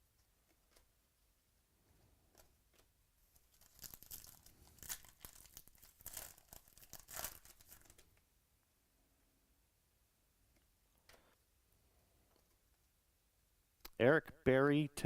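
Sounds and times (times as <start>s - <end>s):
card packaging crinkling and tearing: 3.4s - 8.0s.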